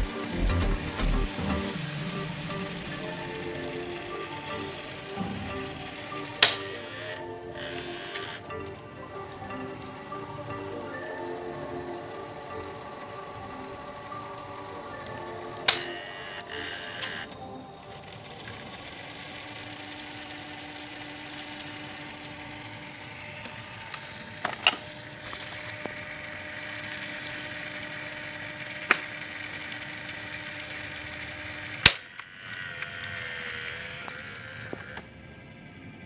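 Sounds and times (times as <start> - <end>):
steady low hum: 0.0 - 16.0
faint steady tones: 0.0 - 31.8.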